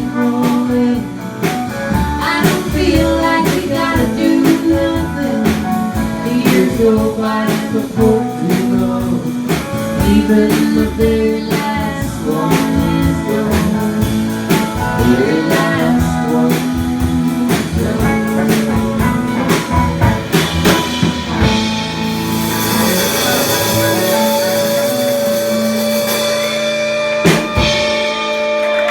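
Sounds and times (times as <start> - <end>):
drum kit steady beat: 0.0 - 28.9
electric guitar lines: 8.2 - 28.9.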